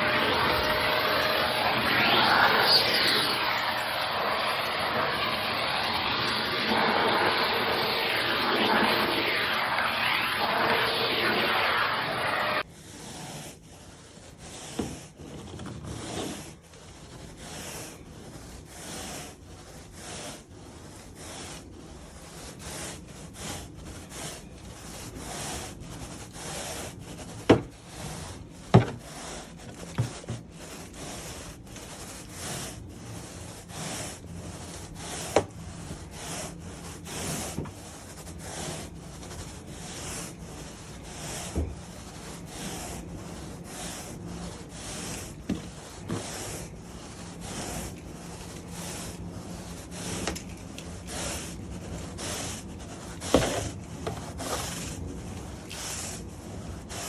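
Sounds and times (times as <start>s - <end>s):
strokes over carpet: 0.0s - 57.0s.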